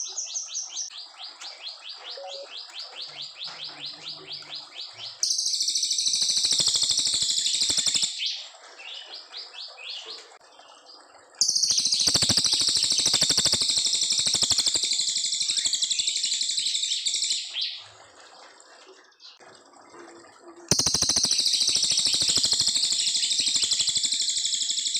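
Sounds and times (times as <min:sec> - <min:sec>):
songbird rapid high-pitched trill: 0:02.0 - 0:04.4, 0:05.0 - 0:08.3, 0:11.4 - 0:17.8, 0:20.7 - 0:24.9.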